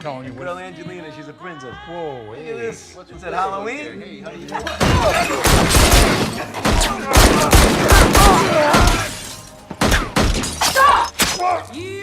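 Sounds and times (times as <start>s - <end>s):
film soundtrack music: 4.1s - 12.0s
sharp impacts and crashes: 4.8s - 11.4s.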